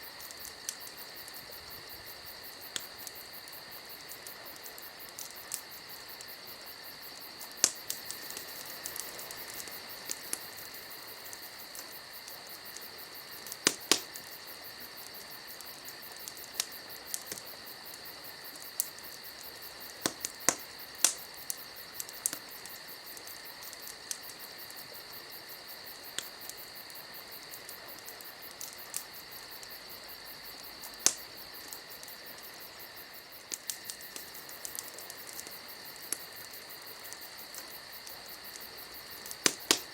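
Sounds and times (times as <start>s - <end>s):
campfire crackling: 0.0s - 39.9s
sharp pops: 39.4s - 39.9s.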